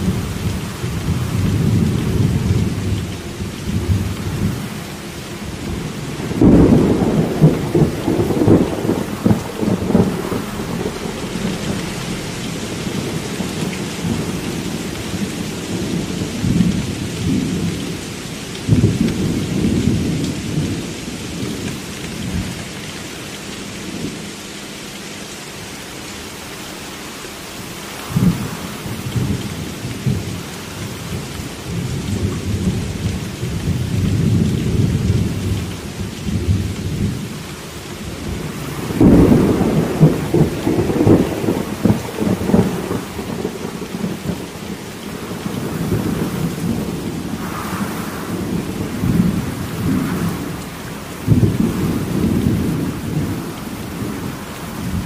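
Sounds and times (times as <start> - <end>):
rolling thunder: 0.0 - 22.6, 27.9 - 37.4, 38.0 - 55.0
steady rain: 0.0 - 55.0
thunder crack: 5.4 - 18.0, 38.3 - 44.5, 45.1 - 55.0.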